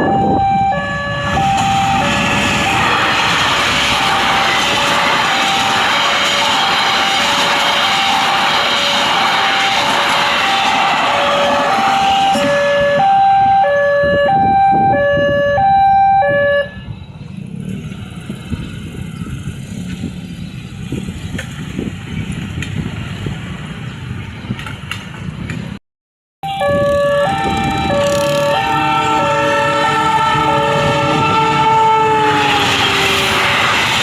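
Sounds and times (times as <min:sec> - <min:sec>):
level crossing two-tone alarm: 0:00.0 - 0:16.9, 0:26.4 - 0:33.6
background traffic: 0:00.0 - 0:25.8, 0:26.5 - 0:34.0.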